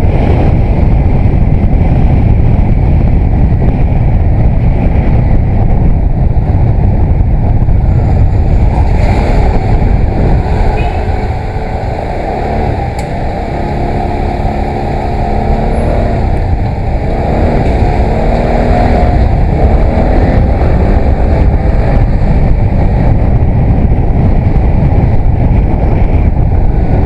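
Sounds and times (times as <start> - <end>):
motorcycle engine revving: 0.0 - 27.0
wind and road noise: 0.0 - 27.0.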